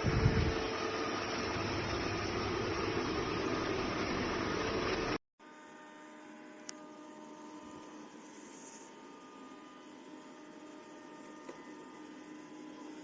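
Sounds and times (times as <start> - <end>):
robot vacuum whirring: 6.4 - 13.0.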